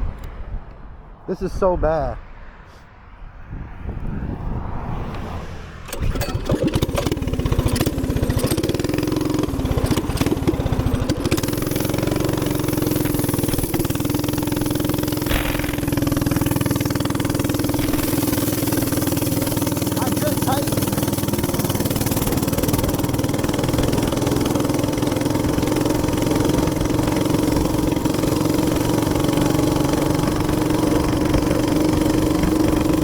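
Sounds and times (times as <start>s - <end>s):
small engine revving: 5.1s - 33.0s.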